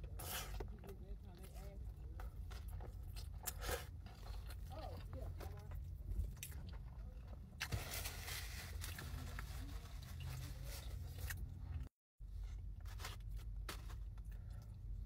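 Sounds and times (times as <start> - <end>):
person chewing food: 0.0 - 7.7.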